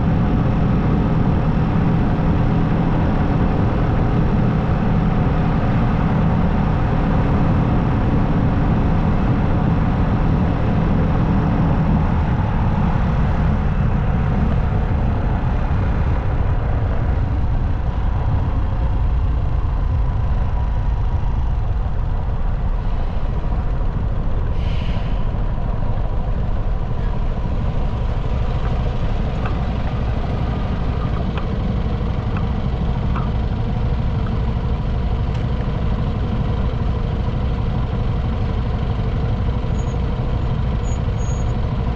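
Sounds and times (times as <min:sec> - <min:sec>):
wind and tyre noise: 0:00.0 - 0:41.9
short hiss: 0:24.6 - 0:25.3
motorcycle engine running: 0:25.3 - 0:41.8.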